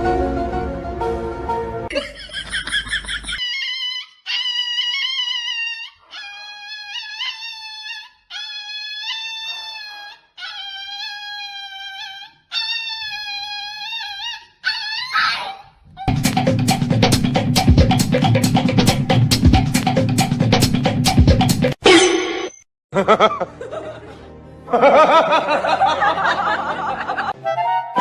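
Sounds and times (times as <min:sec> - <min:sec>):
music: 0:00.0 - 0:01.9, 0:16.1 - 0:21.8, 0:23.0 - 0:28.0
dog howling: 0:03.4 - 0:16.1.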